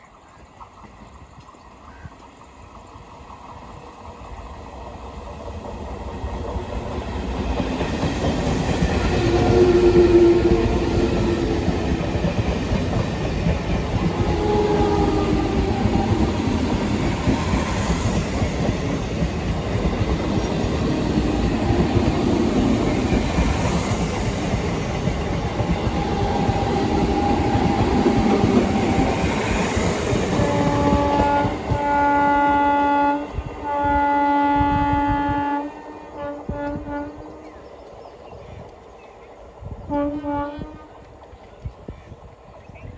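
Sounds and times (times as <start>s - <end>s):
train wheels rumbling on track: 0.0s - 42.9s
train horn blasts: 9.0s - 12.0s, 14.0s - 16.7s, 30.4s - 37.6s, 39.8s - 41.0s.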